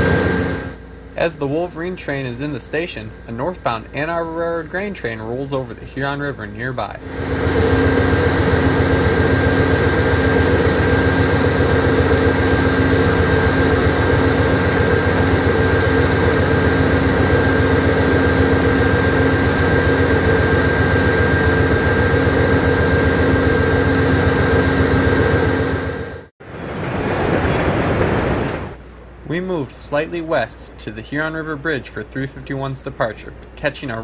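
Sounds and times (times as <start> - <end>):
held engine tones: 0.0 - 26.3
diesel locomotive engine drone: 0.0 - 33.6.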